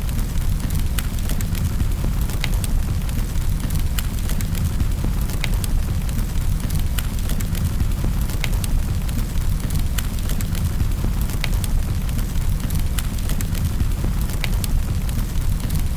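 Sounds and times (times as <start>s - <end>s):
wood fire crackling: 0.0s - 15.9s.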